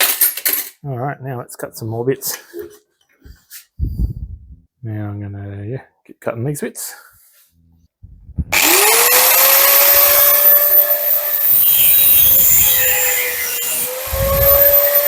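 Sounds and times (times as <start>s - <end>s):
power tool cutting metal: 8.5s - 15.0s.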